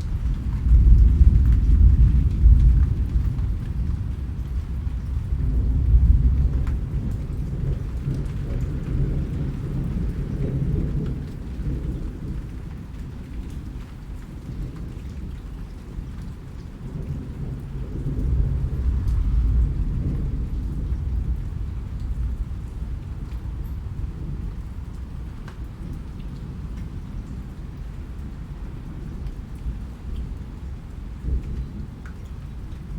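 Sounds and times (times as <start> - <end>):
thunder rumble: 0.0 - 13.6, 14.3 - 32.9
rain falling: 0.0 - 32.9.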